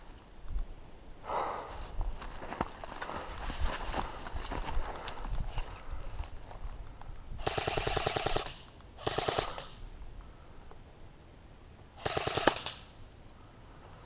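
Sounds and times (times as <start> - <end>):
electric rifle firing bursts: 7.4 - 9.8, 12.0 - 13.0.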